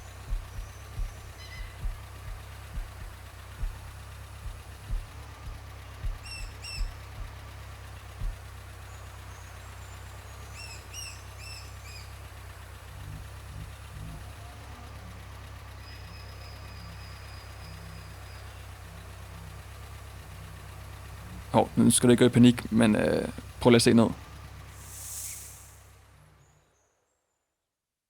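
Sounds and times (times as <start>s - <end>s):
dull thumps: 0.0s - 8.5s
birds chirping: 0.0s - 24.5s
vehicle engine idling: 0.0s - 27.0s.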